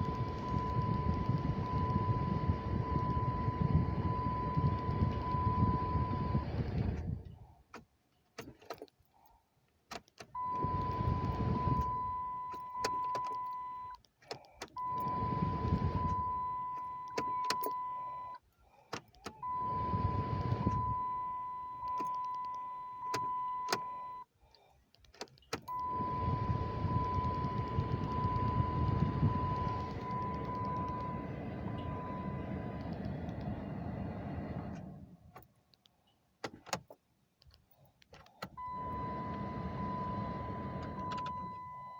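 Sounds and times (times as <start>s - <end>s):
car electrical hum with high tone: 0.0s - 8.8s, 9.7s - 41.9s
ignition key and switch clicks: 9.7s - 24.3s, 24.9s - 33.7s, 34.5s - 38.8s, 40.7s - 41.9s.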